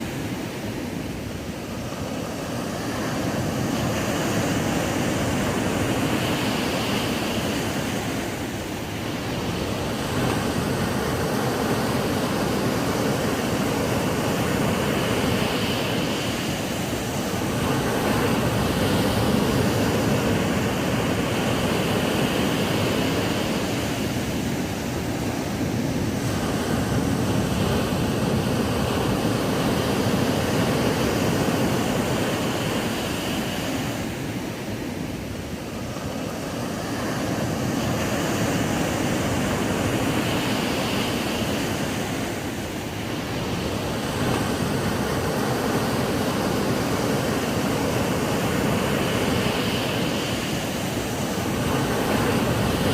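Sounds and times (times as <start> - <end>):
ocean surf breaking on sand: 0.0 - 52.9.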